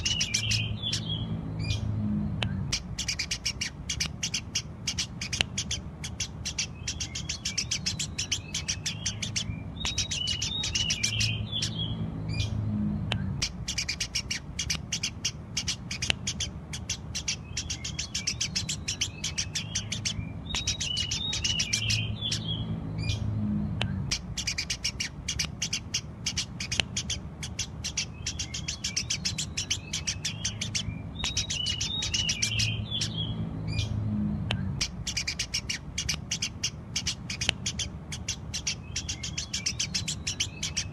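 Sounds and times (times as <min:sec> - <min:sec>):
sparrows chirping: 0:00.0 - 0:40.9.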